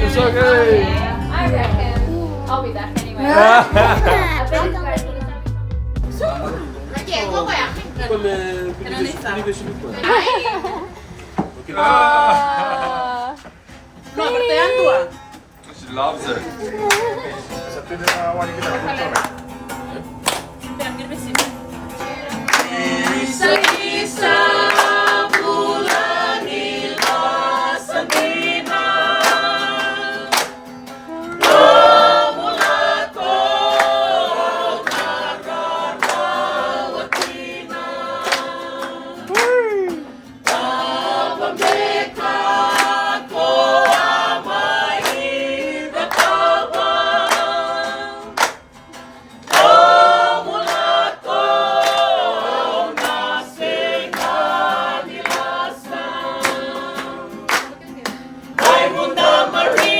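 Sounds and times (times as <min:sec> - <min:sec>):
group singing in harmony: 0:00.0 - 0:05.0, 0:21.9 - 0:59.9
sharp regular beat: 0:00.0 - 0:08.4.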